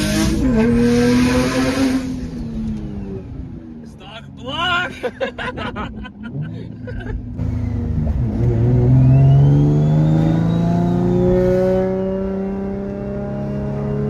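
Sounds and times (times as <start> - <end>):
car engine pulling under load: 7.3 - 13.8.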